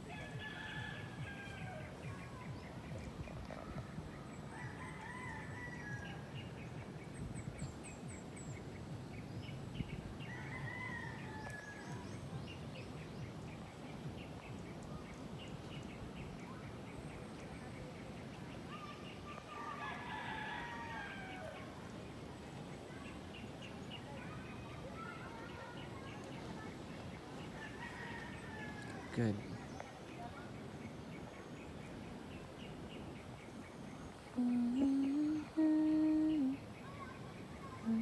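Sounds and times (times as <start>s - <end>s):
small birds chirping: 0.0s - 38.0s
rooster crowing: 0.1s - 2.0s, 4.6s - 6.2s, 10.3s - 11.9s, 19.6s - 21.6s
outdoor hiss: 28.2s - 38.0s.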